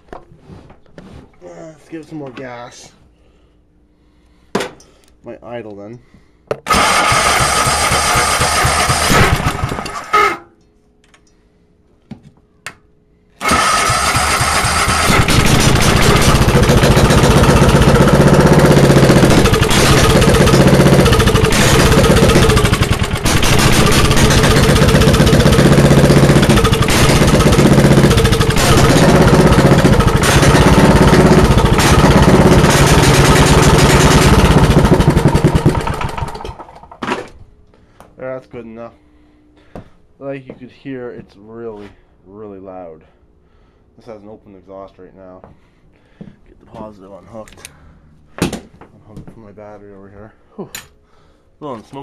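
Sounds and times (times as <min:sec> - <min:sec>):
loud engine running: 0:06.7 - 0:10.2, 0:13.4 - 0:36.9.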